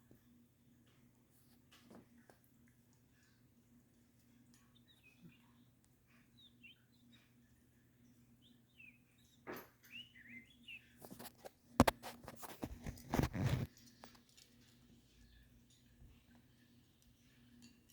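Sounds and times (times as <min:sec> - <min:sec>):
bird chirping softly: 0:00.0 - 0:11.8, 0:12.4 - 0:17.9
faint steady hum: 0:00.0 - 0:17.9
rustling scrape: 0:11.0 - 0:14.1.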